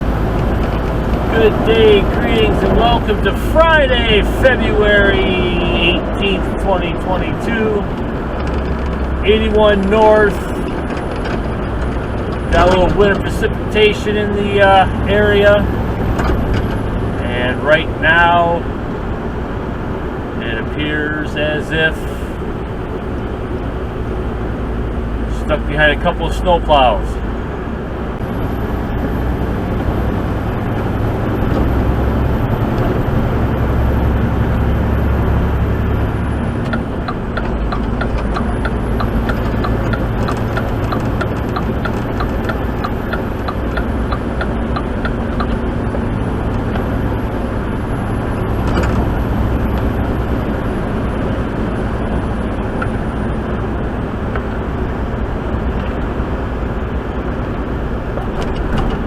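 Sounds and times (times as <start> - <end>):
truck engine and road noise: 0.0 - 59.0
fast light ticks: 36.6 - 45.6.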